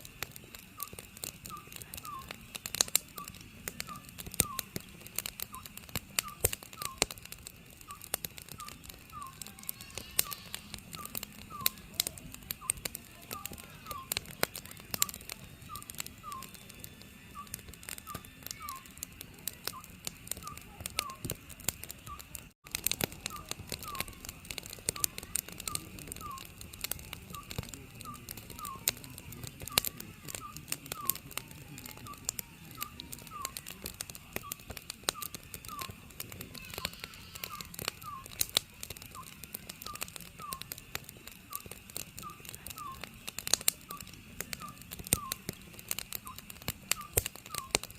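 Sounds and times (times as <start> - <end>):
wood fire crackling: 0.0 - 47.9
owl hooting: 7.9 - 14.3, 15.0 - 16.6, 17.4 - 19.0, 23.2 - 24.2, 24.9 - 26.5, 34.4 - 38.4, 39.1 - 40.8, 41.5 - 43.1, 43.9 - 45.4.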